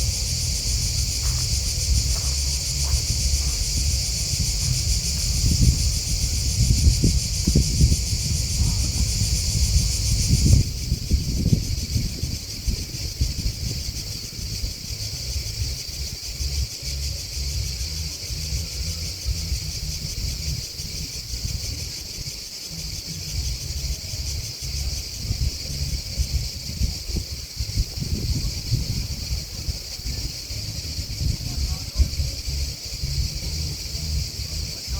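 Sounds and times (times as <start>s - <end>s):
low rumble: 0.0s - 11.3s
grasshoppers and crickets chirping: 0.0s - 34.9s.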